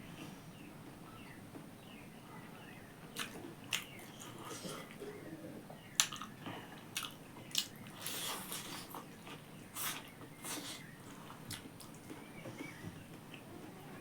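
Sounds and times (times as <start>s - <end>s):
person chewing food: 3.1s - 5.1s, 6.0s - 13.5s.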